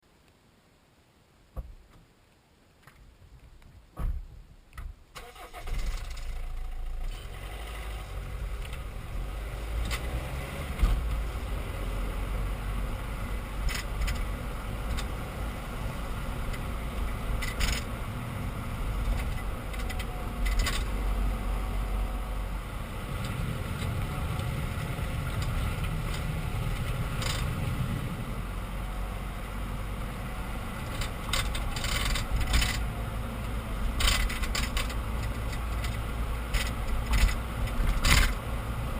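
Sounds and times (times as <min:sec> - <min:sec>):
car engine low rumble: 0:03.2 - 0:38.9
sharp clacks from rear axle: 0:04.8 - 0:07.9, 0:09.8 - 0:11.2, 0:13.6 - 0:15.2, 0:16.4 - 0:18.0, 0:19.0 - 0:21.0, 0:23.2 - 0:27.8, 0:30.8 - 0:32.9, 0:33.8 - 0:38.6.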